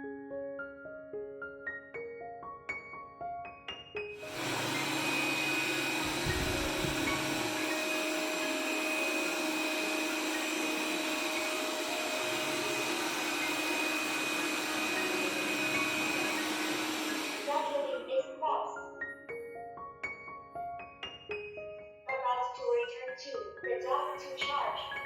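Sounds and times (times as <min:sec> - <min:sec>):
robot vacuum running: 0:04.2 - 0:18.0.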